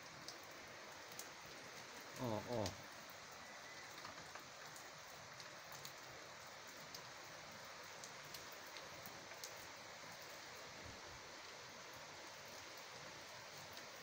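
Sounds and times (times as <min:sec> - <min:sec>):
rain hissing: 0:00.0 - 0:14.0
raindrops ticking nearby: 0:00.0 - 0:14.0.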